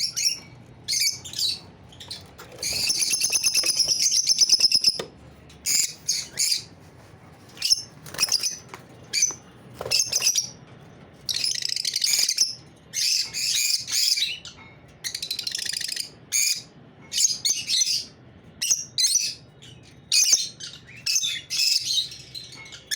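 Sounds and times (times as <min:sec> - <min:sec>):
buzzy bird calls: 0:00.0 - 0:05.0, 0:07.4 - 0:10.6
lovebirds chirping: 0:00.0 - 0:10.6.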